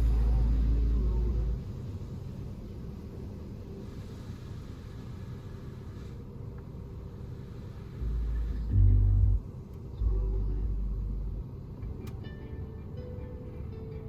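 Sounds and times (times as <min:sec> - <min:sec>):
car wash equipment rumbling: 0:00.0 - 0:14.0
loud deep rumbles: 0:08.0 - 0:11.7.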